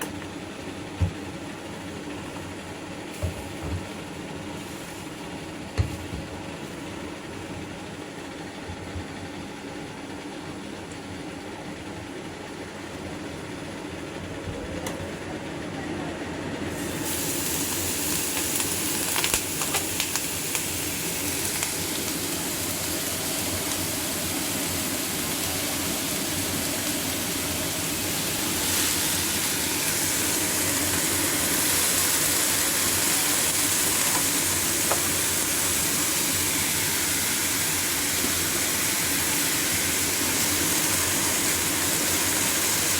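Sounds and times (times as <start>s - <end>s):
food sizzling in a wok: 3.1s - 6.8s, 16.7s - 42.9s.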